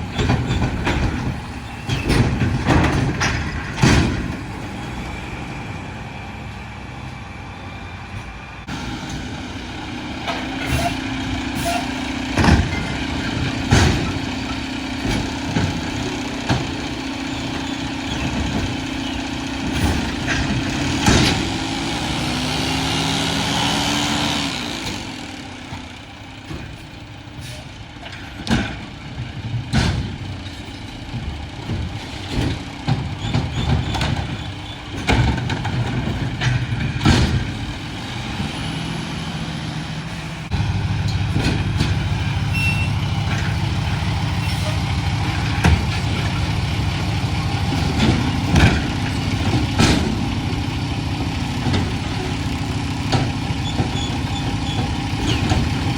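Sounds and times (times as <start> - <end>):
sharp knocks and clanks: 0.0 - 4.7, 10.1 - 22.5, 28.0 - 39.3, 40.5 - 55.9
garbage truck diesel engine: 0.0 - 55.9.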